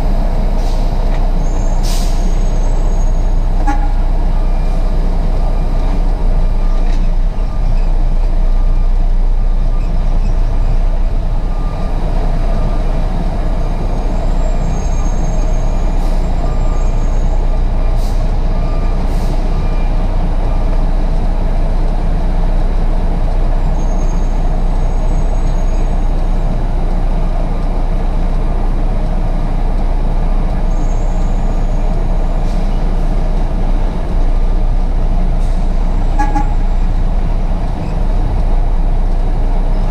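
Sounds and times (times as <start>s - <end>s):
diesel truck engine rumbling: 0.0s - 39.9s.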